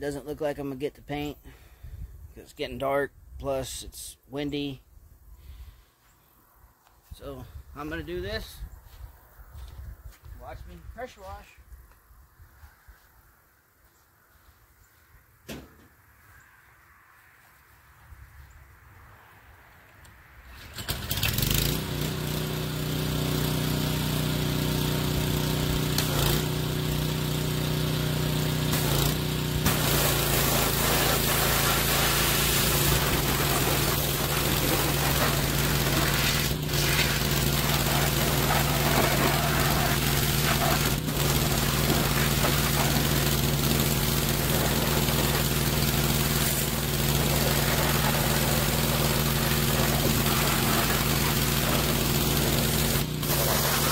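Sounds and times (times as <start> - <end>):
small gasoline engine running: 20.5 - 53.9
high-pressure water spray hissing: 28.7 - 53.9.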